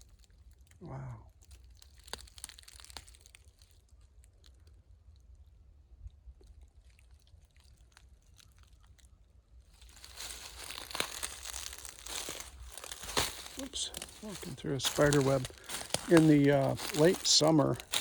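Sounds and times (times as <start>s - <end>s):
footsteps crunching in dry leaves: 9.8s - 18.0s.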